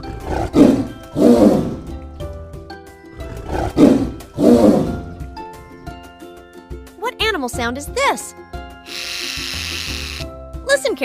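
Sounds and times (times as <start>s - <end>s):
tiger roaring: 0.0s - 1.9s, 3.2s - 5.1s
background music: 0.0s - 11.0s.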